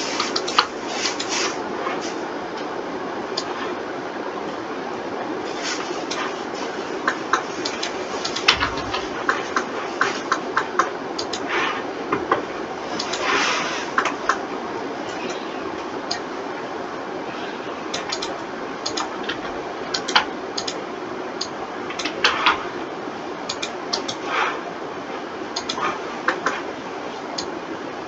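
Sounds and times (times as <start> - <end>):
steady background hiss: 0.0 - 28.0
mouse and keyboard clicks: 7.3 - 11.5, 17.9 - 19.4, 20.0 - 20.8, 23.5 - 24.2, 25.6 - 26.6.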